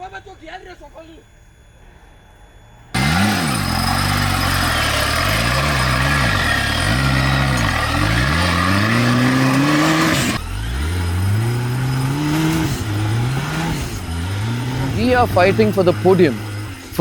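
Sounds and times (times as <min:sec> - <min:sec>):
engine revving: 0:02.9 - 0:17.0.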